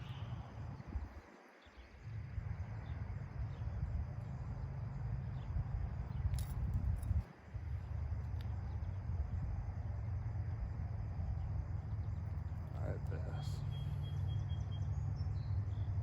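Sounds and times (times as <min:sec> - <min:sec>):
wind buffeting the microphone: 0:00.0 - 0:12.2.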